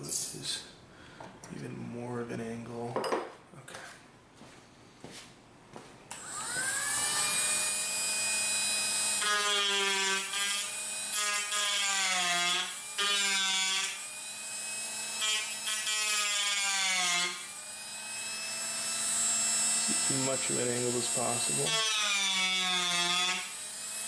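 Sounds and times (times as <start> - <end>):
rotary tool grinding wood: 6.1 - 24.0
rotary tool whining: 6.1 - 24.0.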